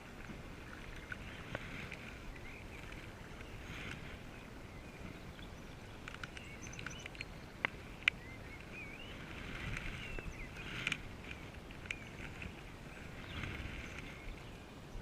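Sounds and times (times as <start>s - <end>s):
small birds singing: 0.4s - 15.0s.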